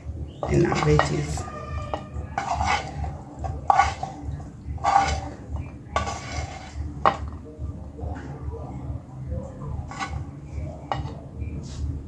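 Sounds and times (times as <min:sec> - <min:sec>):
utensil scraping and clinking dishes: 0:00.0 - 0:07.4, 0:09.6 - 0:11.2.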